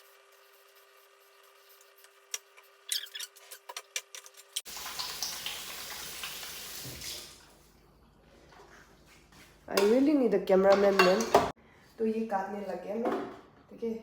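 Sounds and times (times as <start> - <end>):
kitchen tap running: 4.7 - 7.5
kitchen utensils clicking: 9.8 - 11.5.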